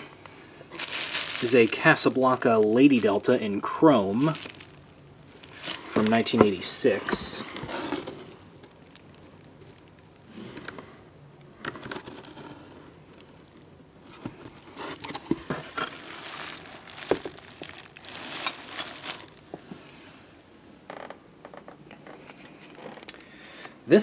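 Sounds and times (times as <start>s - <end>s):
cardboard boxes rustling: 0.0s - 3.4s, 4.0s - 9.2s, 14.0s - 19.7s.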